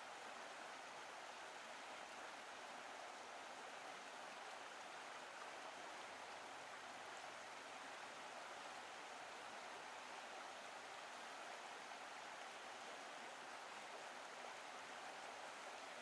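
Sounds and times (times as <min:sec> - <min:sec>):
brook running water: 0:00.0 - 0:16.0.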